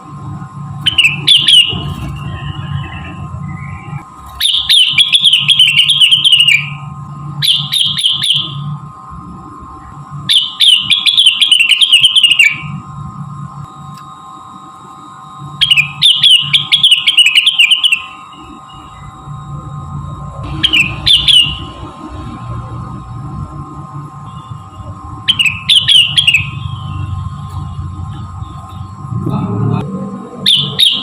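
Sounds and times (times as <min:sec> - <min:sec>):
steady hum: 0:00.0 - 0:31.0
songbird chattering trills: 0:02.9 - 0:06.8, 0:15.6 - 0:18.1.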